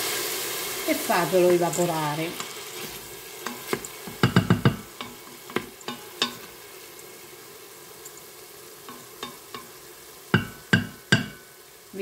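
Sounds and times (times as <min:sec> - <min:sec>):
food sizzling in a pot: 0:00.0 - 0:12.0
wooden spoon knocking on pot: 0:03.5 - 0:06.5, 0:10.3 - 0:11.4.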